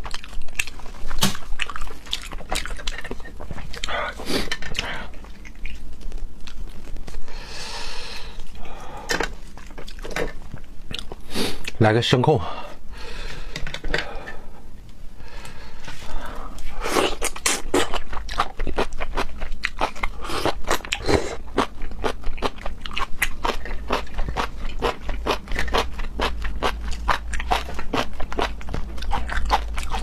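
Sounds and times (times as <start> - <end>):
person chewing and biting food: 0.0 - 7.4, 9.4 - 11.8, 16.6 - 30.0.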